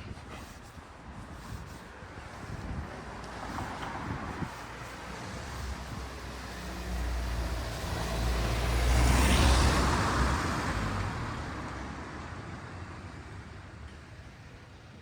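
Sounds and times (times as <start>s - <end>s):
vehicle passing by: 2.7s - 12.1s.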